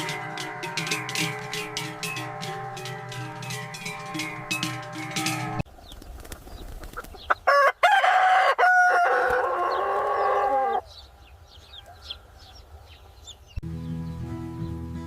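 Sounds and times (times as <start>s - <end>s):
small birds chirping: 1.4s - 7.5s, 9.5s - 14.8s
rooster crowing: 7.5s - 10.8s.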